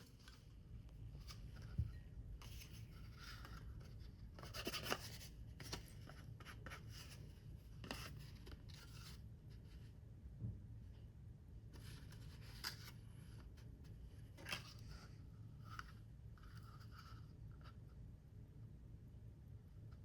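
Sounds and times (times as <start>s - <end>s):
paper rustling and scraping: 0.0s - 9.2s.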